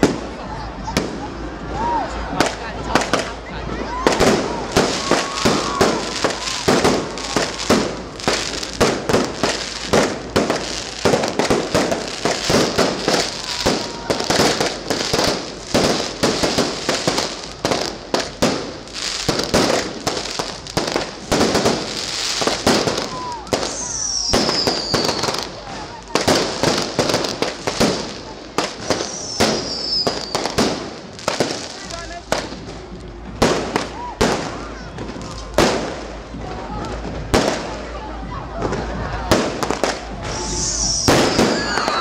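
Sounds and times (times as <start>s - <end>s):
fireworks bangs and crackles: 0.0s - 42.0s
falling firework whistle: 4.0s - 8.8s, 12.2s - 14.7s, 22.6s - 25.6s, 28.9s - 30.6s, 40.2s - 42.0s.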